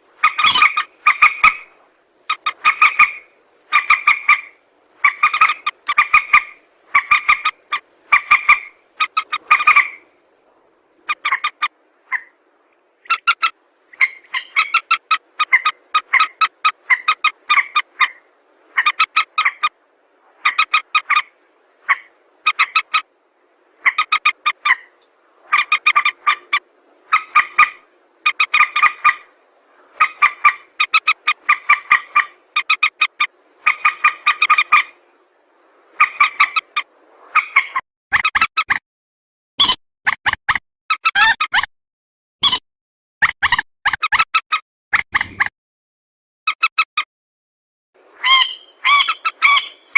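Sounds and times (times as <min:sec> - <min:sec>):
rail bird calls: 0:00.0 - 0:19.8, 0:20.4 - 0:23.1, 0:23.8 - 0:35.1, 0:35.9 - 0:37.8, 0:48.2 - 0:49.9.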